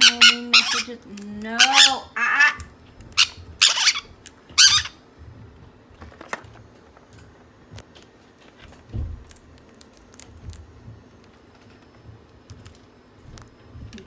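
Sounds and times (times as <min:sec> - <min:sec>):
parrot screeching: 0:00.0 - 0:00.9, 0:01.6 - 0:05.0.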